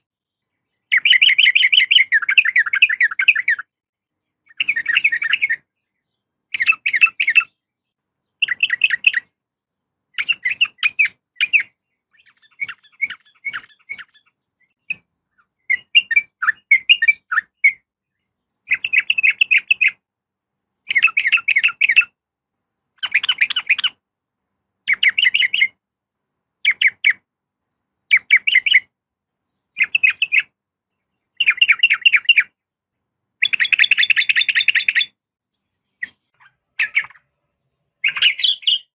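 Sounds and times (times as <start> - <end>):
bird chattering calls: 10.2 - 17.8, 23.0 - 24.0, 33.4 - 35.2, 36.0 - 37.3, 38.0 - 38.9.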